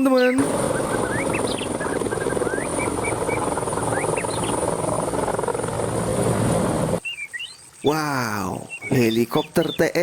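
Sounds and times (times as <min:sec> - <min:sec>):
birds chirping: 0:00.0 - 0:06.0, 0:06.7 - 0:10.0
helicopter rotor and engine: 0:00.0 - 0:07.0.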